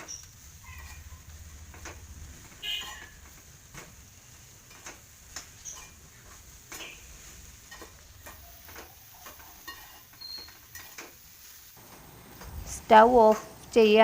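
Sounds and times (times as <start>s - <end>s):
spoon scraping a wok: 0.0s - 3.4s, 4.7s - 11.7s.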